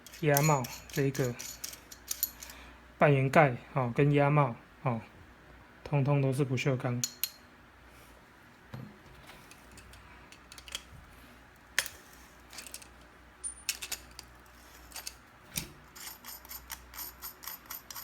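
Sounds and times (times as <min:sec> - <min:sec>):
metal parts clicking and clinking: 0:00.0 - 0:02.6, 0:09.5 - 0:10.9, 0:11.8 - 0:18.0.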